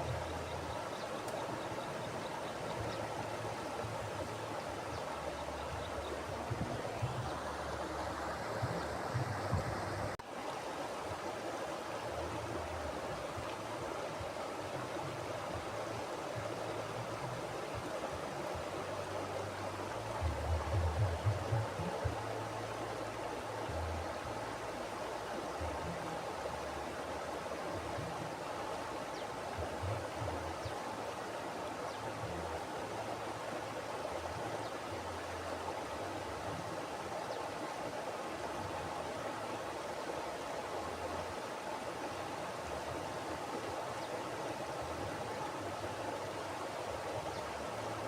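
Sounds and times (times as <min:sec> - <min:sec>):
low rumbles of river: 0:00.0 - 0:48.0
river water rushing: 0:00.0 - 0:48.0.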